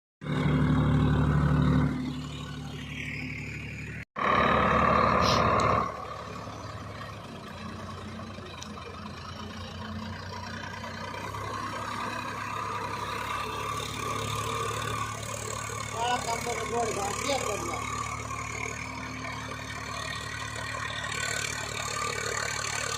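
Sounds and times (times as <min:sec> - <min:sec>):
tractor diesel engine running: 0:00.2 - 0:22.9.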